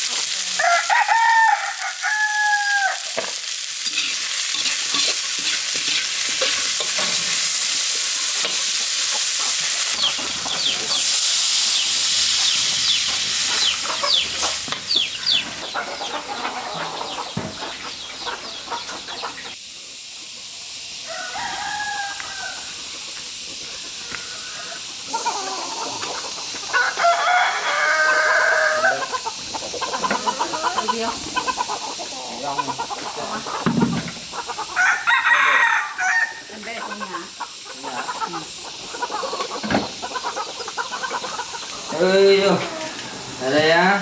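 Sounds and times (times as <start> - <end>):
food sizzling in hot oil: 0.0 - 15.8, 19.5 - 44.0
rooster crowing: 0.5 - 3.2, 21.0 - 22.9, 26.7 - 31.2, 34.6 - 36.8, 41.9 - 43.5.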